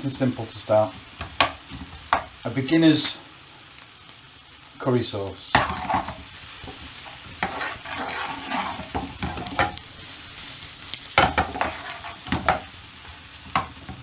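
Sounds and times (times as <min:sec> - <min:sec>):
onion sizzling in oil: 0:00.0 - 0:14.0
utensil scraping pan: 0:05.5 - 0:12.7.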